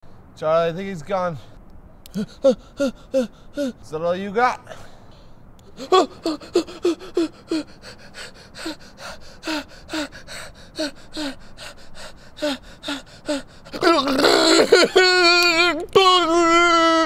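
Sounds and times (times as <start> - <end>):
person breathing in short breaths: 4.7 - 13.7.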